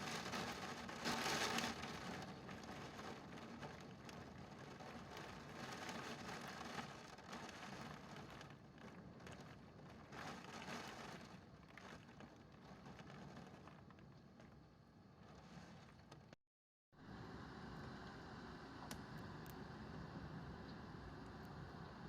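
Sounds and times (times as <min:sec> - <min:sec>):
wind and rain rushing: 0:00.0 - 0:14.0.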